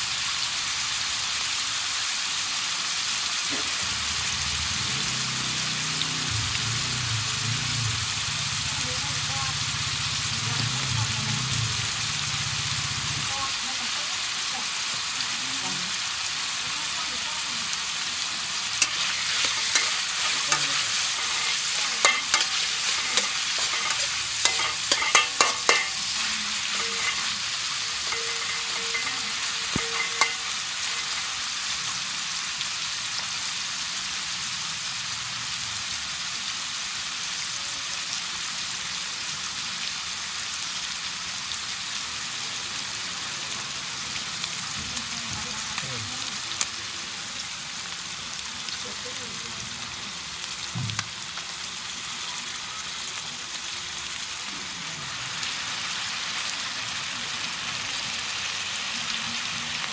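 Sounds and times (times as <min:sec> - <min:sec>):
meat sizzling in a wok: 0:00.0 - 0:59.9
metal spatula scraping a wok: 0:18.7 - 0:31.9.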